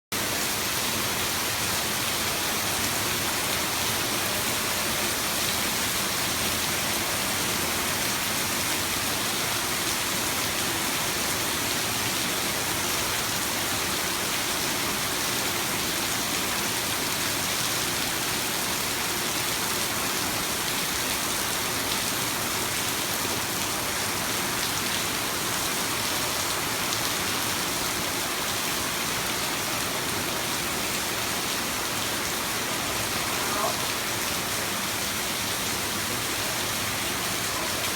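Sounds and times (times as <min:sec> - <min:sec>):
heavy rain pouring: 0:00.2 - 0:37.9.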